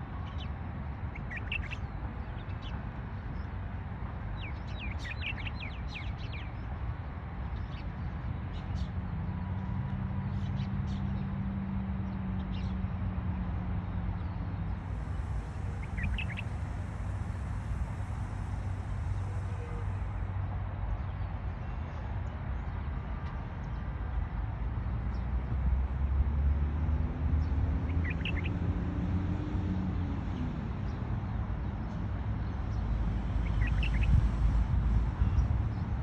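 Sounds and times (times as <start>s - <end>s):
steady low rumble: 14.7s - 20.4s
short high bird chirps: 15.6s - 16.6s.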